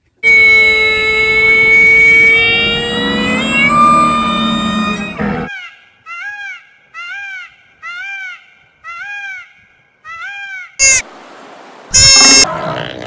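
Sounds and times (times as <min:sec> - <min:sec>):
bird call rising and falling: 0:00.2 - 0:05.7.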